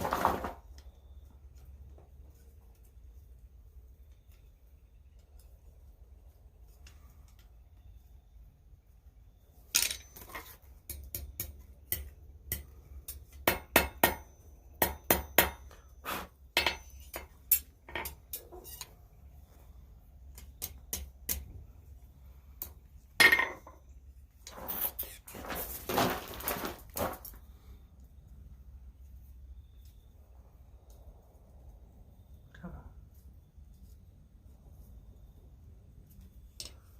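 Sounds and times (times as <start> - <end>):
metal clattering and scraping: 0.0 - 0.7, 24.4 - 27.4
metal clinks and knocks: 9.7 - 15.9, 16.6 - 19.0.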